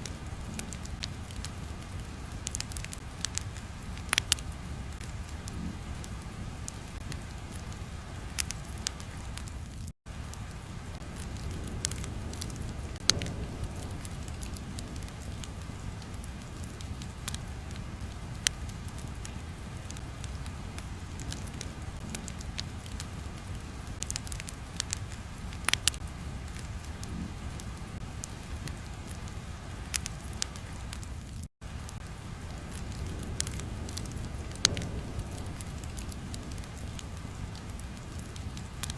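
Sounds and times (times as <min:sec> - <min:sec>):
fire crackles and pops: 0:00.0 - 0:38.9
fire low rumble: 0:00.0 - 0:38.9.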